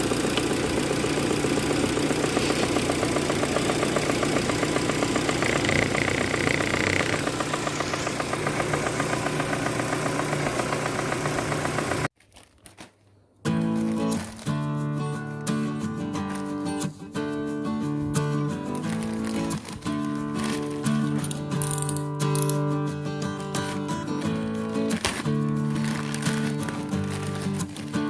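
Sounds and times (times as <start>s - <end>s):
car engine idling with ticking: 0.0s - 12.1s.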